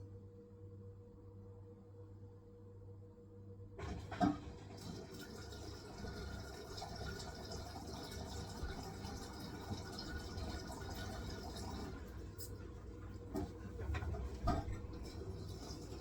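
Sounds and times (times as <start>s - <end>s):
water rushing into washing machine: 3.8s - 16.0s.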